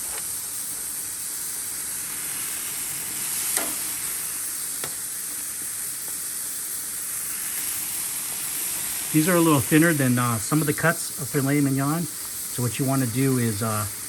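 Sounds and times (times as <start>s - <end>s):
steaks sizzling on a grill: 0.0s - 14.0s
fat popping and crackling: 2.6s - 6.2s.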